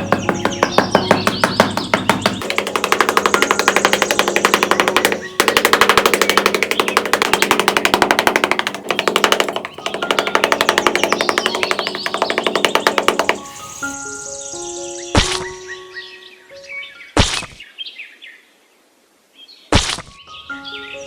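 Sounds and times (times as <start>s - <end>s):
machine rattling: 0.4s - 13.9s.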